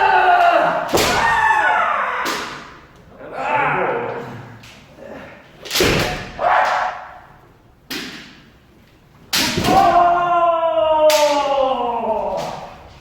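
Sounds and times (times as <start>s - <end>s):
bamboo swords striking armour: 0.9s - 1.4s, 9.3s - 10.0s
person shouting: 9.5s - 12.8s.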